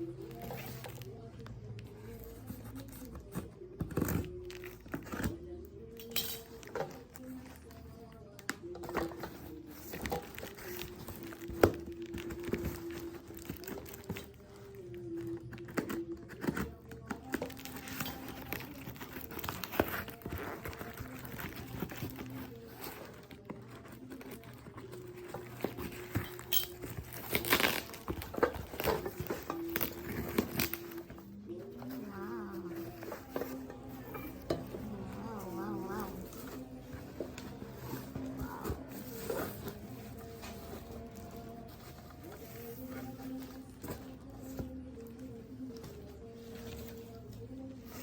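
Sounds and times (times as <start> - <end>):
packaging crinkling and tearing: 9.0 - 48.0
background music: 12.6 - 48.0.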